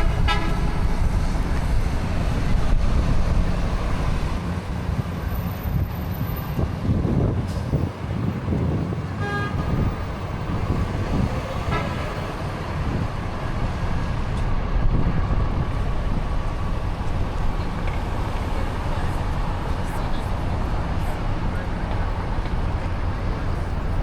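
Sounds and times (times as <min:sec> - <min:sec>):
car horn toot: 0:00.0 - 0:00.8, 0:09.2 - 0:10.1, 0:11.6 - 0:12.3
street traffic rumble: 0:00.0 - 0:24.0.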